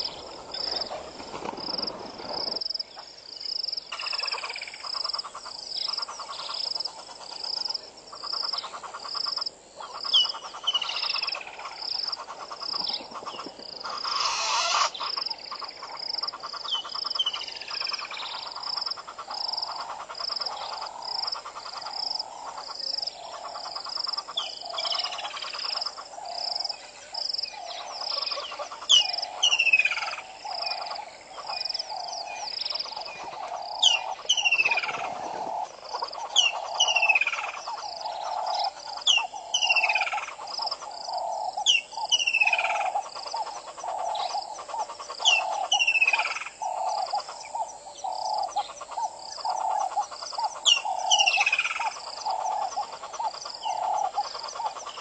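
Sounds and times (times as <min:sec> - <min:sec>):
frogs croaking: 0:00.0 - 0:55.0
descending whistled bird calls: 0:14.0 - 0:15.1.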